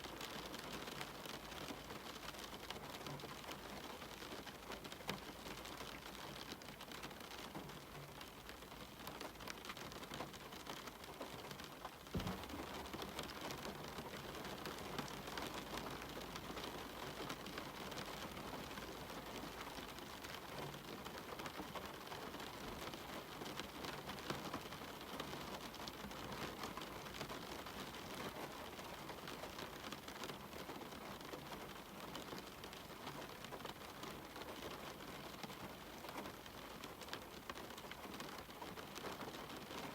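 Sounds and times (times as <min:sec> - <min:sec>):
rain on a window: 0:00.0 - 0:39.9
knock on window: 0:12.2 - 0:12.5.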